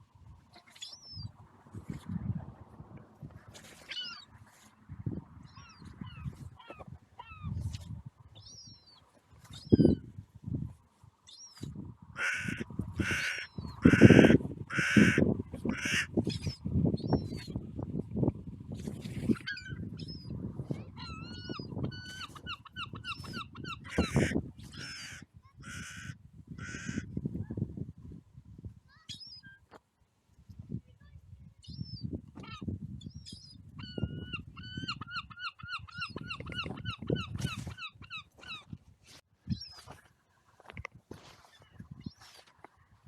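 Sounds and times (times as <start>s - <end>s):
wind buffeting microphone: 1.1s - 8.8s, 9.4s - 29.1s, 30.4s - 40.0s, 40.6s - 43.0s
seagulls calling: 3.8s - 4.7s, 5.5s - 7.6s, 12.2s - 17.5s, 21.0s - 27.0s, 33.3s - 38.7s.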